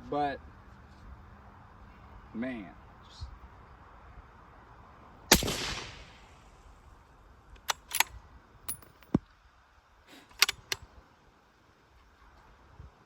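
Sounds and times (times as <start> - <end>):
rifle shot echo: 5.3 - 6.6
rifle bolt clicks and knock: 7.6 - 9.3, 10.3 - 10.8.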